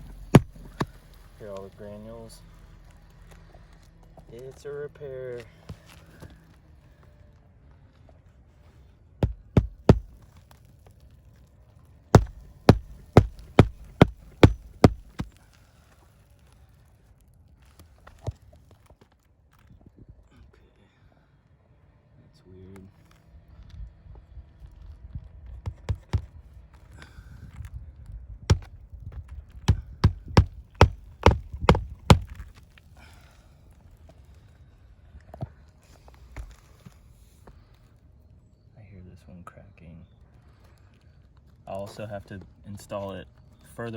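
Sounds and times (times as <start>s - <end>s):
hammer driving nails into shingles: 0.0s - 1.0s, 9.2s - 10.2s, 12.2s - 15.3s, 29.7s - 32.4s.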